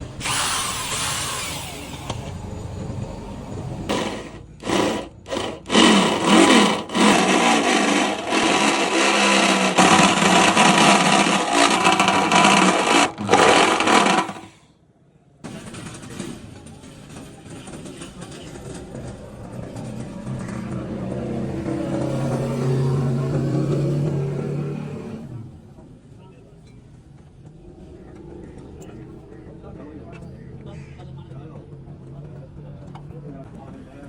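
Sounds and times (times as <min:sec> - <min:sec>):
power tool running: 0:00.0 - 0:14.6.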